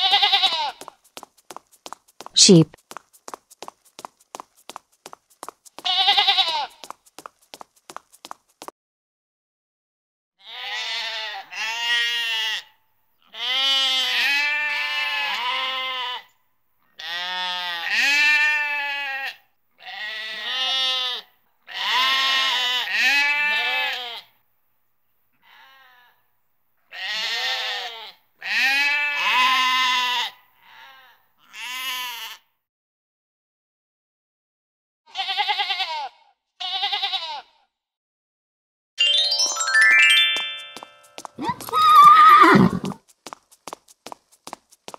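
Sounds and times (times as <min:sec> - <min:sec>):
sheep bleating: 0:00.0 - 0:00.9, 0:05.8 - 0:06.8, 0:10.4 - 0:16.3, 0:17.0 - 0:24.3, 0:25.4 - 0:26.2, 0:26.9 - 0:32.4, 0:35.1 - 0:37.6, 0:41.4 - 0:43.0.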